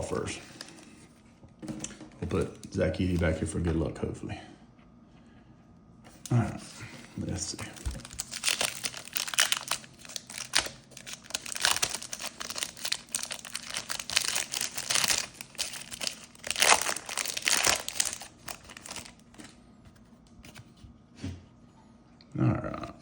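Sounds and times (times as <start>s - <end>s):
wrappers torn and crinkled: 7.6s - 19.6s.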